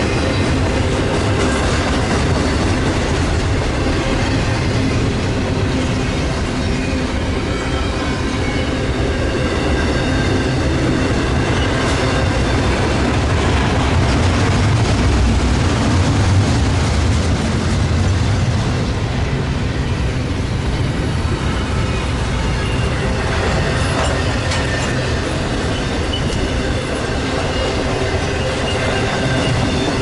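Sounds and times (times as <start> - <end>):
train rumbling on track: 0.0 - 30.0.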